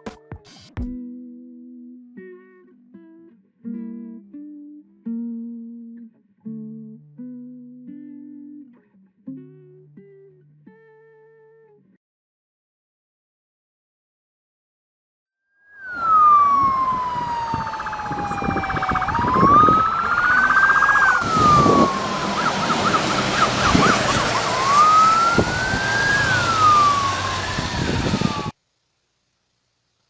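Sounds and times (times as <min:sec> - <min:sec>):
police siren wailing: 0:15.8 - 0:28.5
rumble of passing vehicles: 0:16.2 - 0:28.5.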